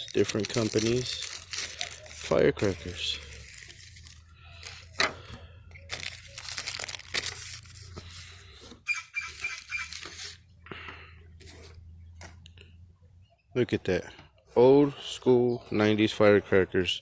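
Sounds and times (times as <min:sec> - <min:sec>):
wrappers rustling and crinkling: 0:00.0 - 0:05.0, 0:05.8 - 0:08.6, 0:09.2 - 0:10.5.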